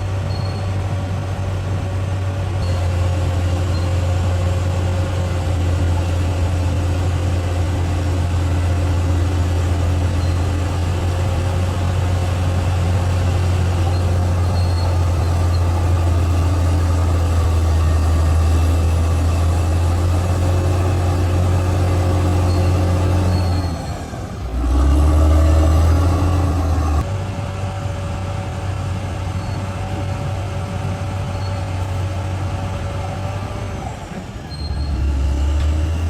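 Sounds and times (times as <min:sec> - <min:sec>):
bulldozer diesel engine: 0:00.0 - 0:36.0
high squeaks: 0:00.2 - 0:00.8, 0:13.8 - 0:16.4, 0:34.5 - 0:35.5.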